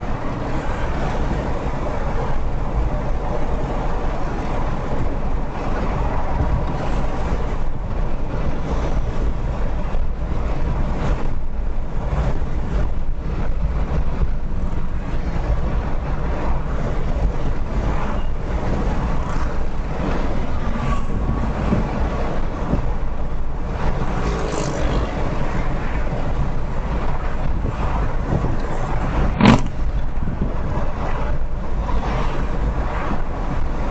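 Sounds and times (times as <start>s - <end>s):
road and wind noise: 0.0s - 33.9s
sharp knock: 29.4s - 29.8s.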